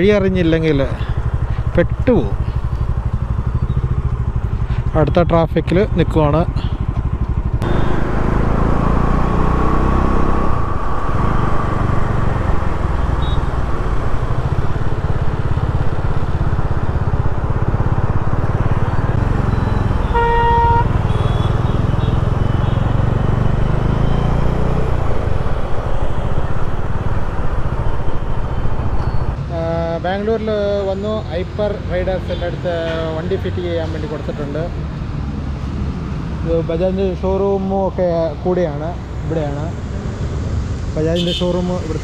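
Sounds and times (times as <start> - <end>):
motorcycle engine running: 0.1 - 29.4
vehicle horn honking: 13.1 - 13.6, 19.9 - 23.0, 41.2 - 41.6.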